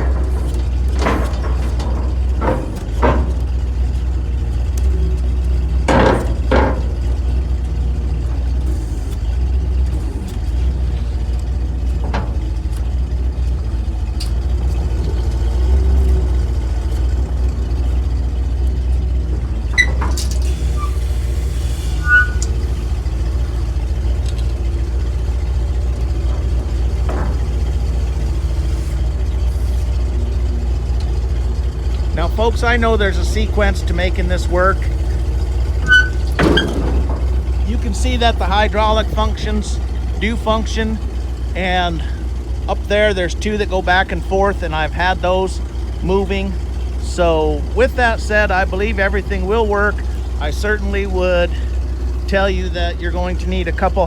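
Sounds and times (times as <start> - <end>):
hydraulics knocks and clunks: 0.0 - 54.0
truck engine droning: 0.0 - 54.0
brief high squeaks: 19.7 - 22.7, 35.8 - 37.4.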